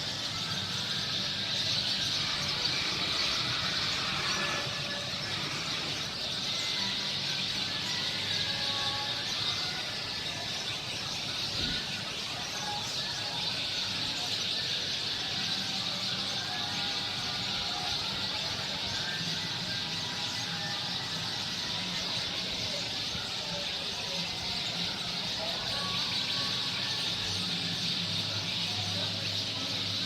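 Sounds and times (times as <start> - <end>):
flock of birds calling: 0.0 - 30.0.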